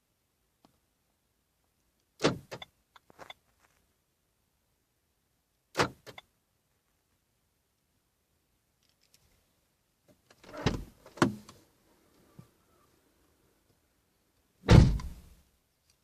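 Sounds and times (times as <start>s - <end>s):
car door thuds: 14.6s - 15.3s.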